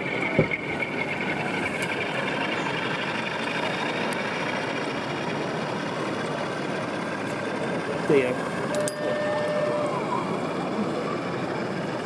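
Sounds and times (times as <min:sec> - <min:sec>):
thin high whine: 0:08.5 - 0:11.0.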